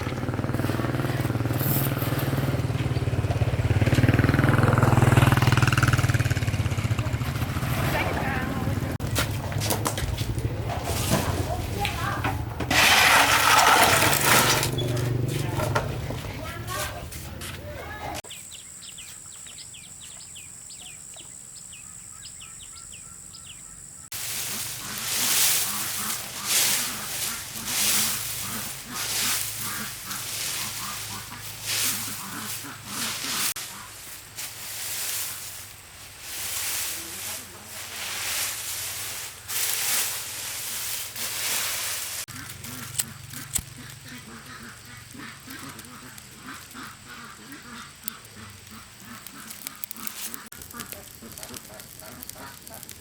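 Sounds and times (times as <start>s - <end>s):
small engine running: 0.0s - 9.0s, 12.7s - 16.0s, 24.2s - 35.6s
birds chirping: 0.0s - 9.1s, 14.2s - 40.9s, 42.2s - 53.0s
insect drone: 18.3s - 53.0s.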